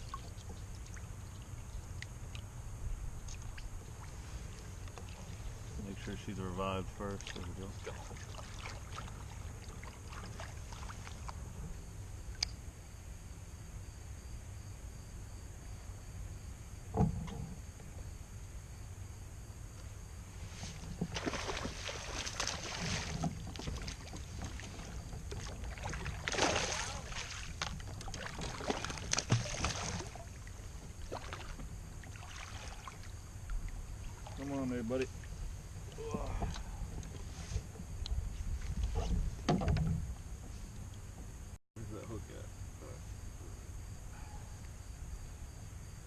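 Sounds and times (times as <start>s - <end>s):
low background rumble: 0.0s - 46.0s
water splashing and dripping: 7.0s - 11.4s, 21.0s - 37.3s.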